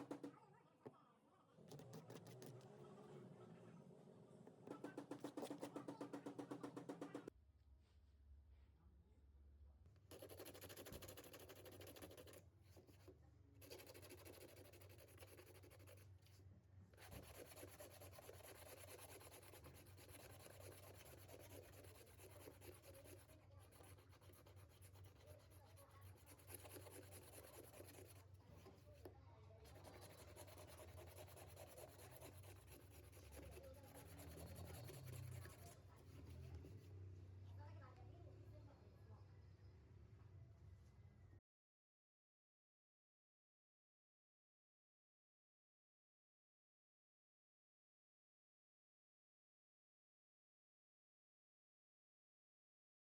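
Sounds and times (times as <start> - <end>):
faint scratching: 10.1 - 37.0.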